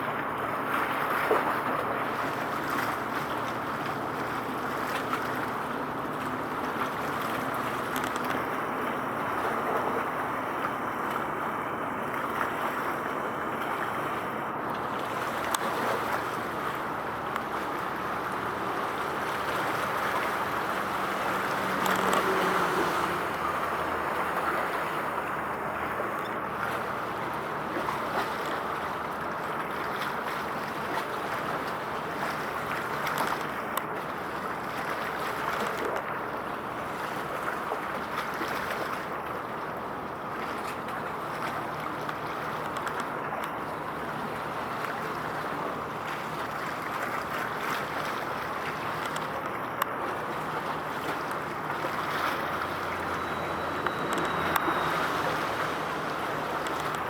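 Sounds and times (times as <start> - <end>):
water: 0.0 - 57.0
wind: 0.0 - 57.0.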